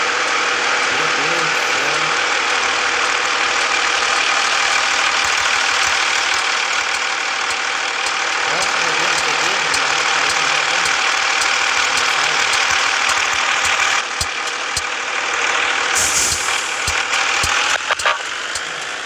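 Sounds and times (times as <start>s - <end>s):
road noise: 0.0s - 19.0s
truck diesel engine running: 0.0s - 19.0s
brief hiss: 16.0s - 16.9s.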